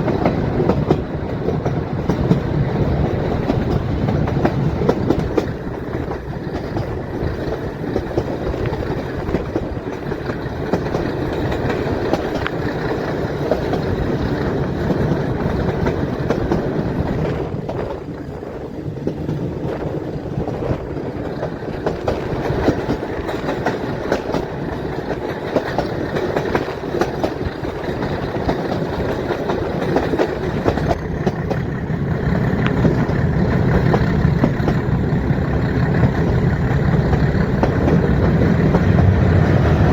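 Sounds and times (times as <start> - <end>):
rumble of train coaches: 0.0 - 39.9
train wheels clicking over rail joints: 0.0 - 39.9.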